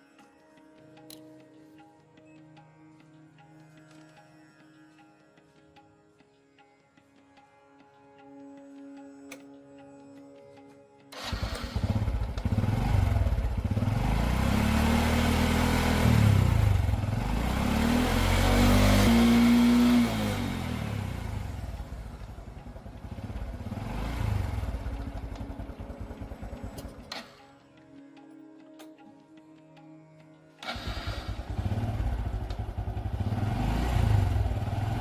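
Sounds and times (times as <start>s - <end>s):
motorcycle engine revving: 11.2s - 27.4s, 30.6s - 35.0s.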